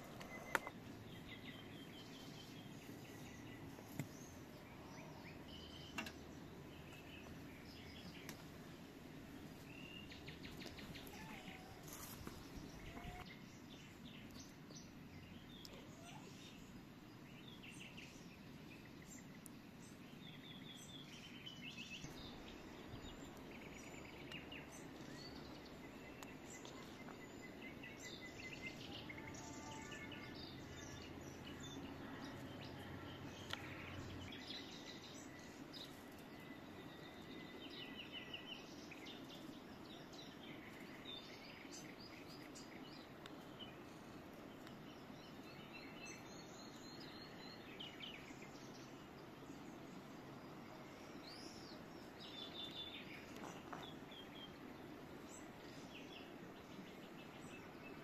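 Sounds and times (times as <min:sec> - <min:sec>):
outdoor background hiss: 0:00.0 - 0:58.0
songbirds chirping and trilling: 0:00.0 - 0:58.0.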